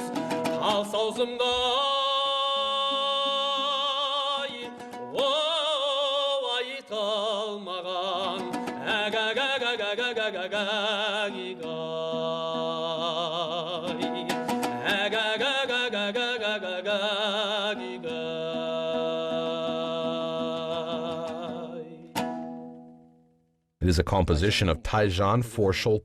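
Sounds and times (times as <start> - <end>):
person singing with vibrato: 0.0 - 22.2.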